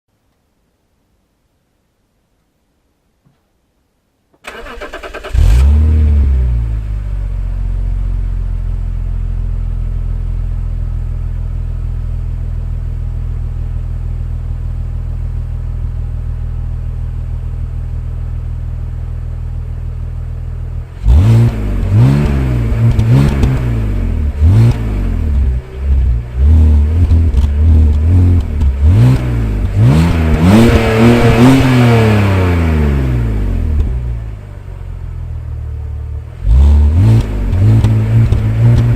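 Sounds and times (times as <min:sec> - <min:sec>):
car engine starting: 0:04.4 - 0:13.9, 0:19.5 - 0:38.9
engine revving: 0:04.5 - 0:07.0, 0:20.9 - 0:34.2, 0:36.4 - 0:38.9
car engine idling: 0:04.5 - 0:38.9.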